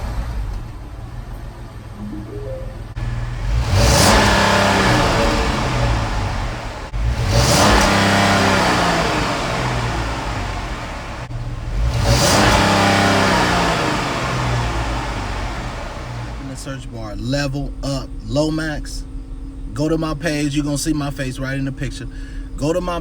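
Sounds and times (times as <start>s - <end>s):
car engine revving: 2.9s - 17.0s.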